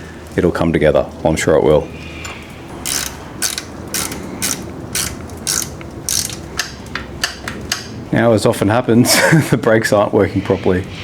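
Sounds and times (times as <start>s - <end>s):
ratchet wrench clicking: 2.7s - 7.9s.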